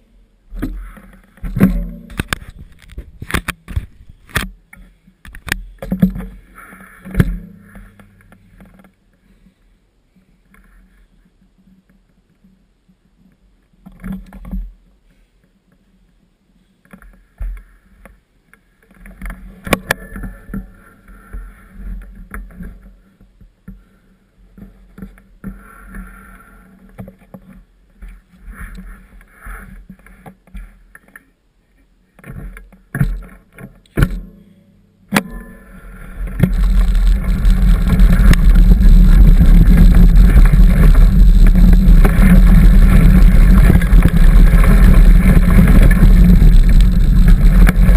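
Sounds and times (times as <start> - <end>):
mountain bike rattling on dirt trail: 19.0 - 23.1, 35.1 - 47.9
wind rush on microphone: 35.8 - 47.9.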